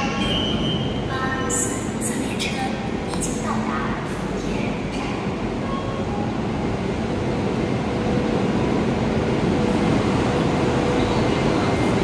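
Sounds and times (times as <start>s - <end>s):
train rumbling hiss: 0.0s - 12.0s.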